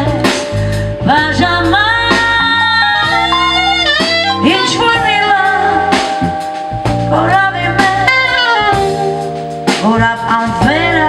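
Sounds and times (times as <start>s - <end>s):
live band playing pop ballad: 0.0s - 11.0s.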